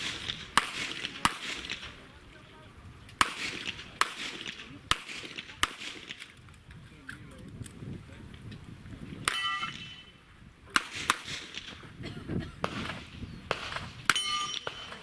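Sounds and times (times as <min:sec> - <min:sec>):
handgun shots: 0:00.0 - 0:02.0, 0:03.2 - 0:06.3
steel target ringing: 0:09.3 - 0:10.1, 0:14.1 - 0:14.8.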